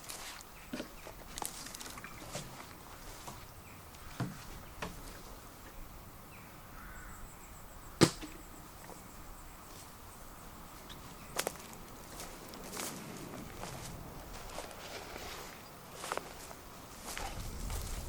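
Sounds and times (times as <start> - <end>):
sharp knocks: 8.0 - 8.4.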